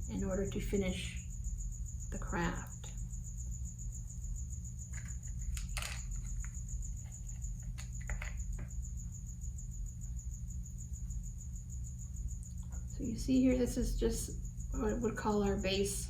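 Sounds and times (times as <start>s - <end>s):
plastic beads rustling and clicking: 4.9s - 8.4s.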